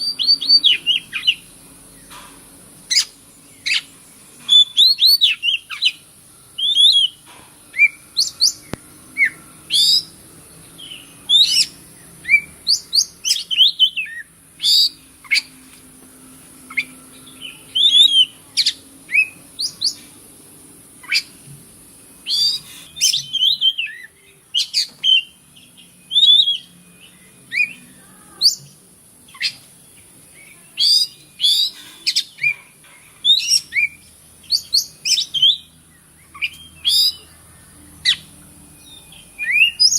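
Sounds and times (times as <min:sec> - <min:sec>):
magpie-robin singing: 0:00.0 - 0:02.1, 0:02.8 - 0:15.6, 0:16.6 - 0:20.1, 0:21.0 - 0:21.4, 0:22.2 - 0:39.9
steady high hiss: 0:00.0 - 0:39.9.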